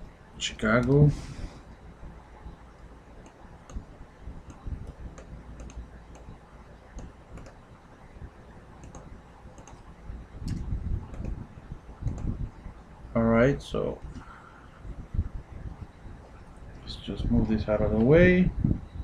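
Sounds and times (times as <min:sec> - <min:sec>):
keyboard keys clicking: 0:04.4 - 0:07.6, 0:08.8 - 0:11.4, 0:12.0 - 0:12.3.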